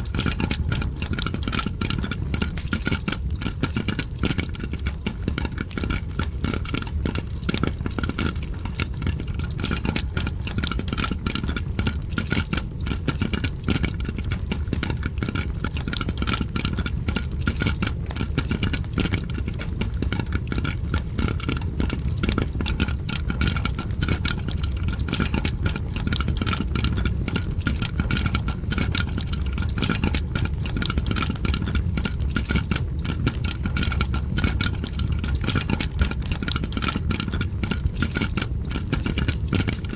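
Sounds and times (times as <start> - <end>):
popcorn popping: 0.0 - 39.9
fireplace crackling: 19.1 - 39.9.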